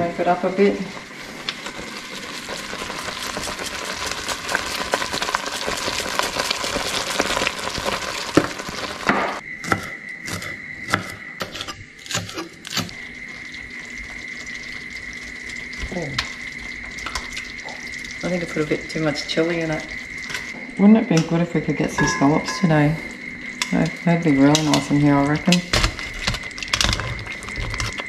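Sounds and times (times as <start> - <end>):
sauce sizzling in a pan: 0.1 - 9.4, 12.9 - 20.6
faint high tone: 22.0 - 23.1.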